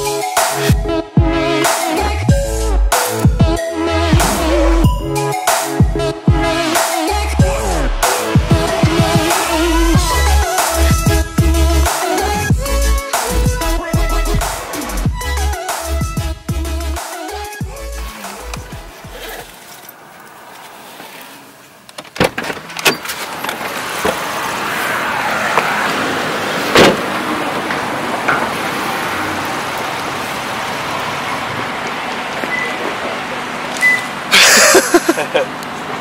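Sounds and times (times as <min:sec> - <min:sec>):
car road noise hiss: 0:17.4 - 0:21.9.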